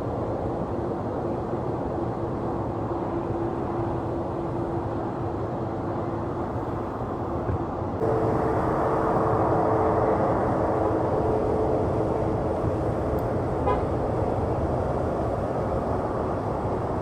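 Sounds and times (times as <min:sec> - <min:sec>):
jet engine rushing: 0:08.0 - 0:17.0.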